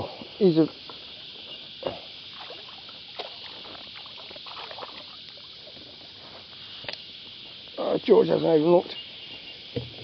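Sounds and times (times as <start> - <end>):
water splashing and sloshing: 0.0 - 7.8
cicadas droning: 0.0 - 10.0.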